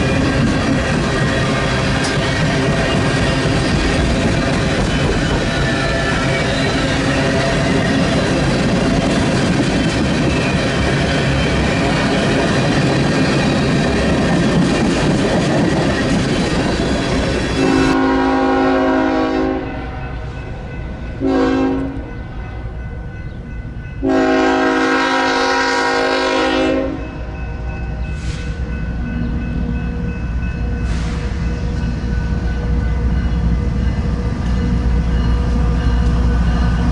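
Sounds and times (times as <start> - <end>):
train rumbling past: 0.0 - 36.9
locomotive air horn: 17.6 - 20.2, 21.2 - 22.1, 24.0 - 27.0.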